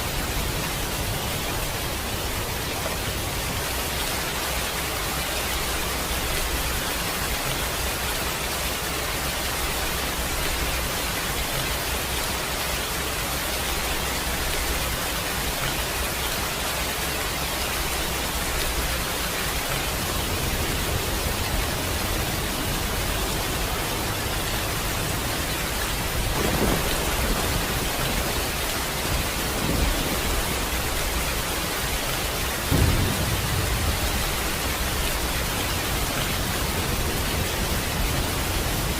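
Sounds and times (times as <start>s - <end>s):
heavy rain hiss: 0.0s - 38.9s
low thunder rumble: 24.8s - 38.9s
short rolls of thunder: 26.3s - 28.4s.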